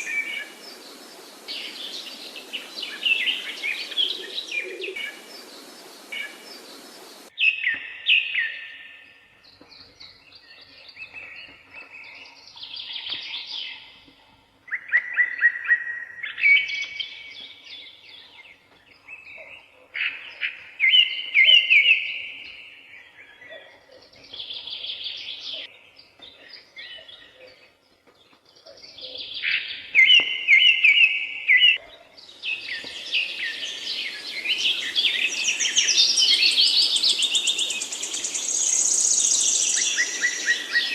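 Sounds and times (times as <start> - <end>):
bird chorus: 0.0 - 40.9
songbirds whistling: 32.5 - 40.9.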